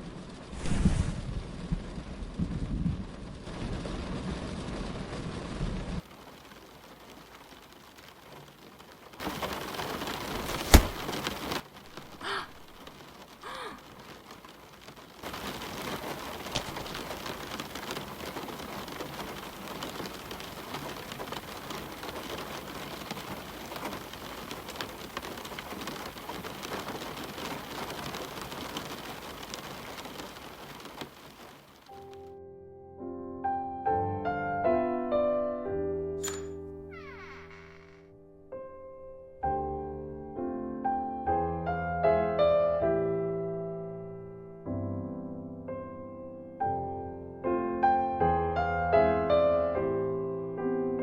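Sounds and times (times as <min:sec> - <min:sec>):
rain falling: 0:00.0 - 0:32.3, 0:36.2 - 0:38.1
sharp loud crack: 0:10.4 - 0:11.3.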